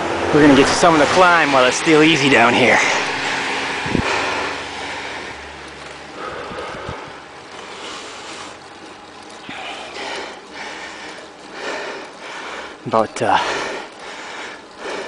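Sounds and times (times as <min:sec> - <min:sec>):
wind rushing over microphone: 0:00.0 - 0:05.5, 0:06.3 - 0:07.3.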